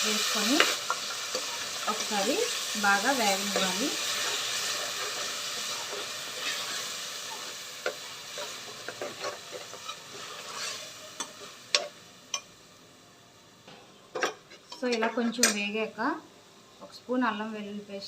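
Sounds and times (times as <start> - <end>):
onion paste sizzling in oil: 0.0 - 13.0.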